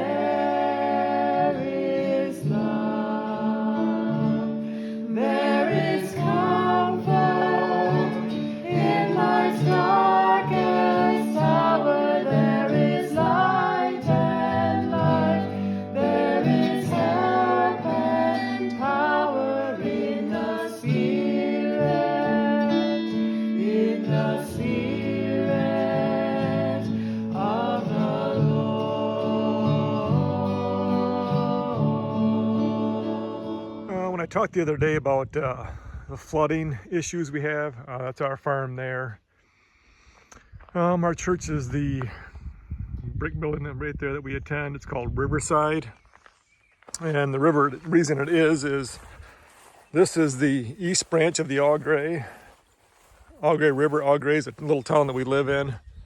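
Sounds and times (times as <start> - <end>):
person singing: 0.0 - 4.5, 5.1 - 33.9
acoustic guitar: 0.0 - 34.4.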